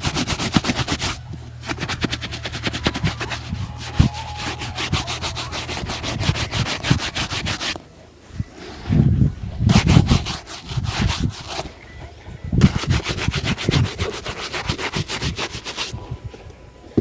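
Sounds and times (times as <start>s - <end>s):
shoe buffing rubbing strokes: 0.0s - 7.8s, 9.7s - 11.8s, 12.6s - 16.0s.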